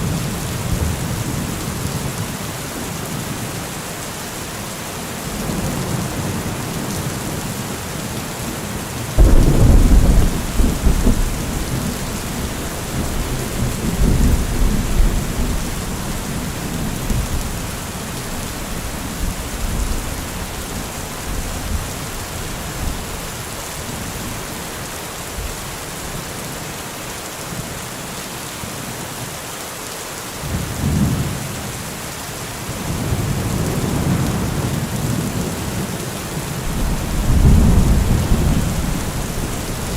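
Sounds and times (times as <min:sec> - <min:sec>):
steady rain: 0:00.0 - 0:39.9
thunder rumbling: 0:09.2 - 0:23.1, 0:36.6 - 0:39.9.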